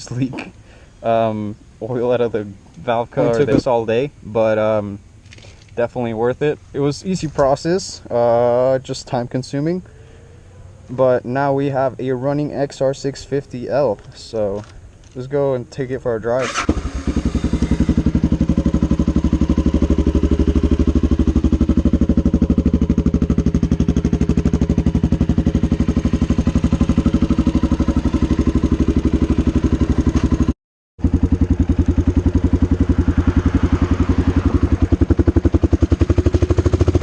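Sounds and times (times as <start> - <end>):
single-cylinder engine thumping: 16.6 - 37.0.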